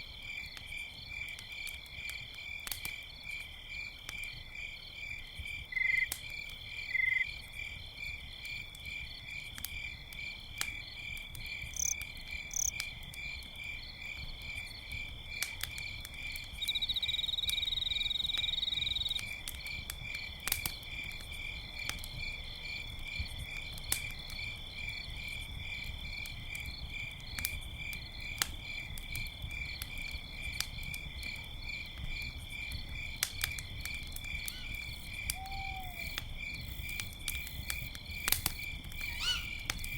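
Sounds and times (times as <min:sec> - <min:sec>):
campfire crackling: 0:00.0 - 0:39.9
crickets chirping: 0:00.2 - 0:39.9
loud insect trill: 0:11.7 - 0:12.8, 0:38.4 - 0:39.9.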